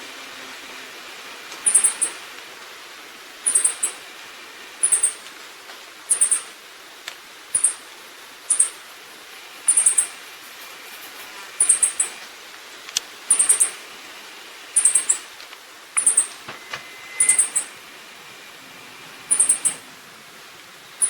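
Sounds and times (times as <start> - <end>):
high-pitched bird calls: 1.6 - 2.3, 3.4 - 4.0, 4.8 - 5.2, 6.1 - 6.6, 7.5 - 7.9, 8.5 - 8.9, 9.6 - 10.3, 11.6 - 12.2, 13.3 - 13.8, 14.8 - 15.3, 16.0 - 17.8, 19.2 - 19.9.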